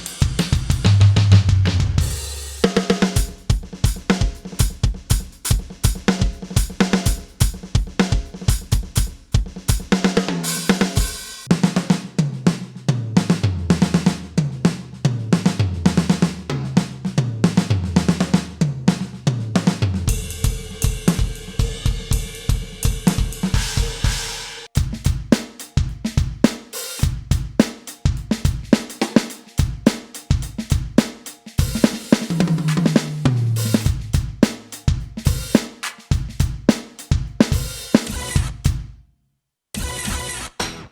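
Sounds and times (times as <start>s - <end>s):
electronic drum beat: 0.0s - 39.0s
tom fill: 0.0s - 39.0s
ringing cymbal wash: 20.1s - 24.7s.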